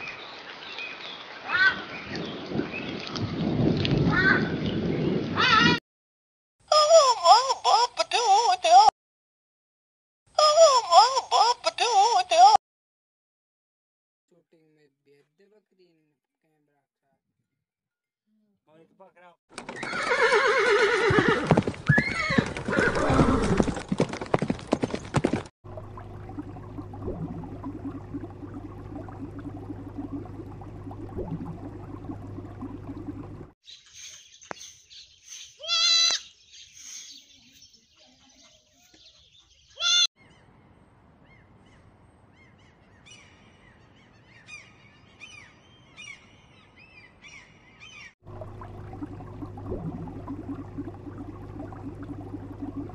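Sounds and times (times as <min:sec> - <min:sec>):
horse whinnying: 0:19.6 - 0:24.0
hoof clops: 0:20.8 - 0:25.5
low hum: 0:25.7 - 0:33.5, 0:48.3 - 0:52.9
aquarium air bubbling: 0:25.7 - 0:33.6, 0:48.2 - 0:52.9.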